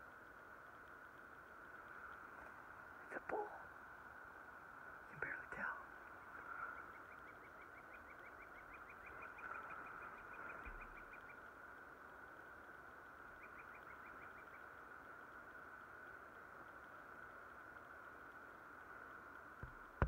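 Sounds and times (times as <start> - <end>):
faint steady hiss: 0.0 - 20.0
faint bird trill: 5.2 - 11.5, 13.3 - 14.7.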